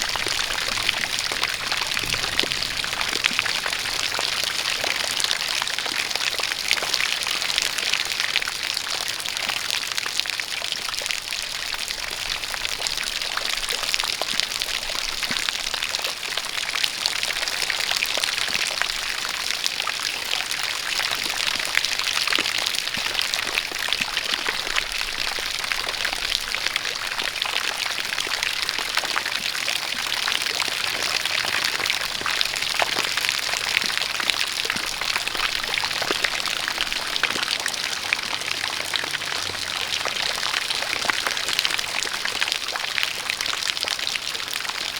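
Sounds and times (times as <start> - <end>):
water jet pouring: 0.0 - 5.8
rain drops: 0.0 - 44.9.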